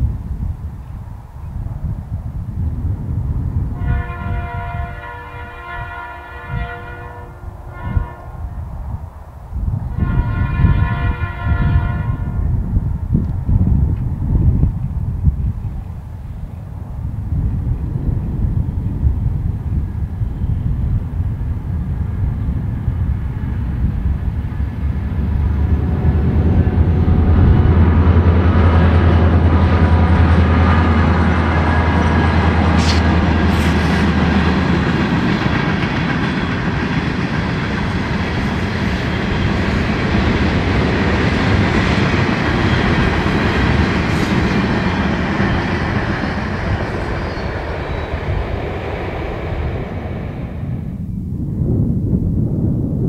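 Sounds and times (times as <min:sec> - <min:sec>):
locomotive engine drone: 0:11.2 - 0:51.8.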